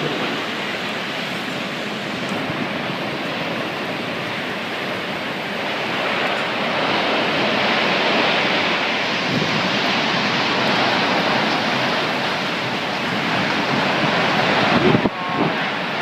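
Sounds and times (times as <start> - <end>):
wind and rain rushing: 0.0 - 16.0.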